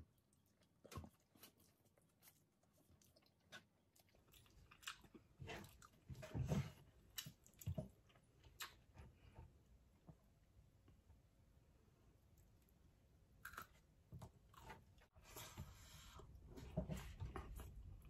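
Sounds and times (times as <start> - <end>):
person chewing food: 0.1 - 10.1, 13.3 - 15.2.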